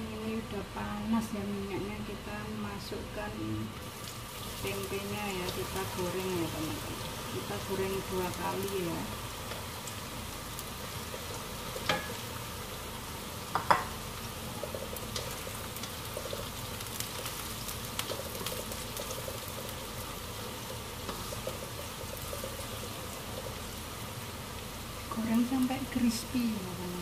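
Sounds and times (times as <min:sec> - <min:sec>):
food deep-frying in hot oil: 0:00.0 - 0:27.0
spatula stirring and scraping: 0:17.2 - 0:23.6.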